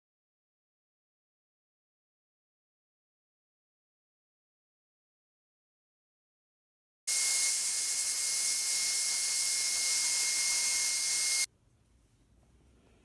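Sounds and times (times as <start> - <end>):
hair dryer blowing: 7.1 - 11.5.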